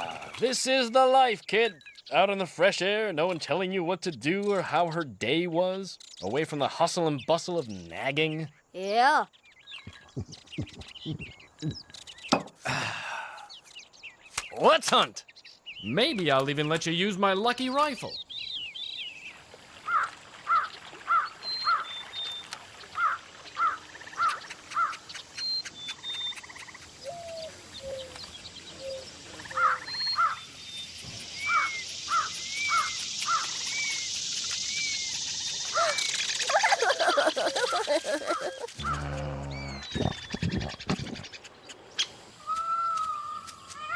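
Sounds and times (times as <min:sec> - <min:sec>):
birds chirping: 0:00.0 - 0:43.9
rising and falling bird calls: 0:07.2 - 0:16.8, 0:17.9 - 0:43.9
steady high hiss: 0:26.8 - 0:39.8.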